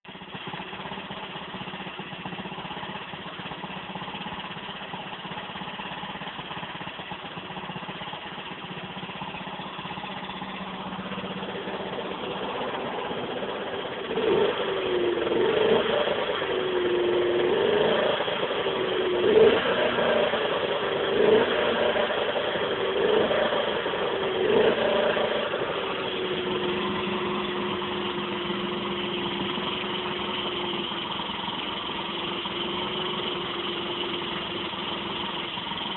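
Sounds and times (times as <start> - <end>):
motorcycle engine idling and revving: 0.0 - 35.9.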